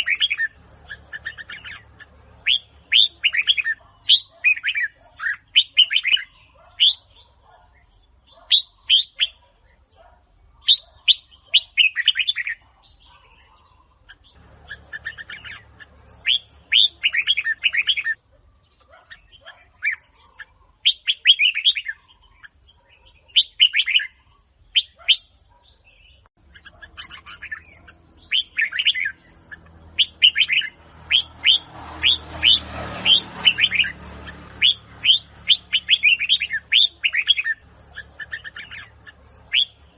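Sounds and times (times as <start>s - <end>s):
bird singing whistled phrases: 0.0s - 1.8s, 2.4s - 7.2s, 10.6s - 13.2s, 16.2s - 18.2s, 20.8s - 22.1s, 23.3s - 25.3s, 25.9s - 29.2s, 34.6s - 37.6s, 39.5s - 39.8s.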